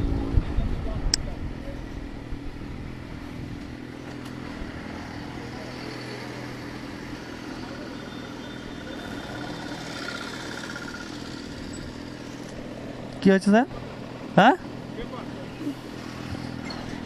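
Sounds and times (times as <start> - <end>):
motorcycle engine running: 0.0 - 13.1
street traffic noise: 0.0 - 17.0.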